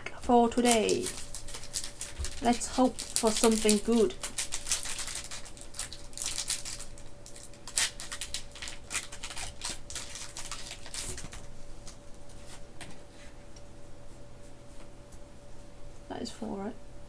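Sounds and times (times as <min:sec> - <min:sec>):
foil wrapper crinkling: 0:00.5 - 0:12.0.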